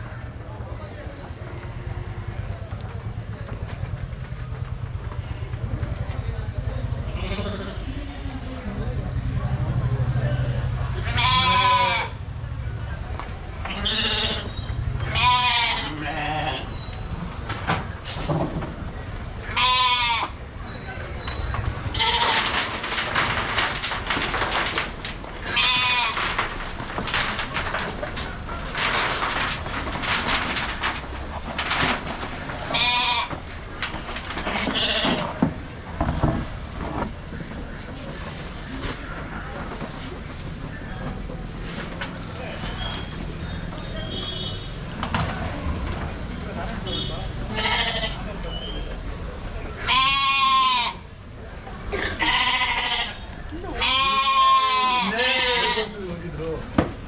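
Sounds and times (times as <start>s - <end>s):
rustling: 13.5s - 48.7s, 49.9s - 57.0s
sheep bleating: 13.7s - 16.7s, 25.4s - 26.4s, 47.5s - 48.2s, 49.8s - 51.1s, 52.0s - 55.9s.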